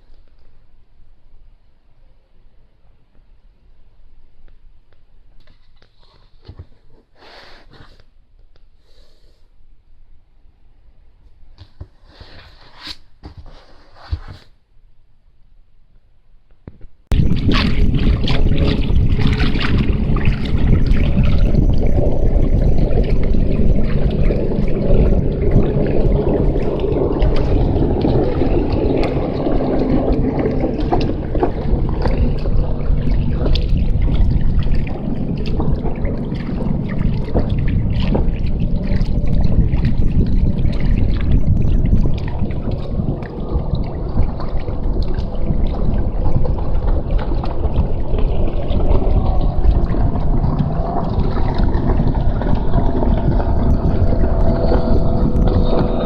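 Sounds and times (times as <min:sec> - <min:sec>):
water splashing along a hull: 0:17.0 - 0:56.0
wind rumble: 0:17.0 - 0:56.0.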